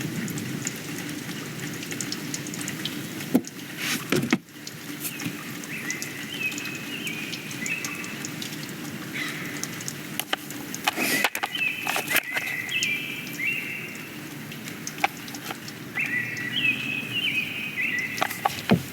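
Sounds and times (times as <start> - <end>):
knocks and scrapes: 10.2 - 12.5, 18.2 - 18.9
songbird whistling: 16.0 - 18.5.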